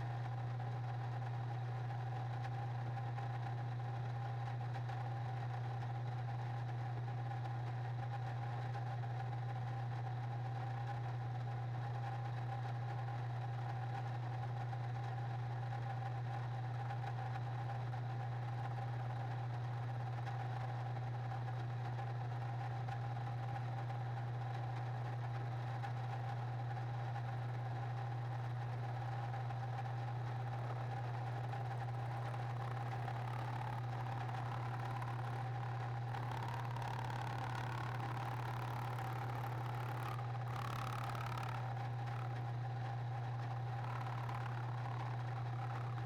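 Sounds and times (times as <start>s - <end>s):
machine tool motor humming: 30.5s - 42.2s.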